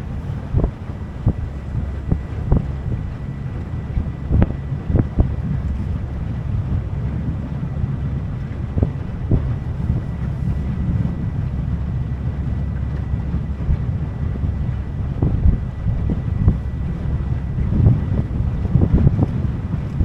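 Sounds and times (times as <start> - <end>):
boat engine rumble: 0.0 - 20.0
wind buffeting microphone: 0.0 - 20.0.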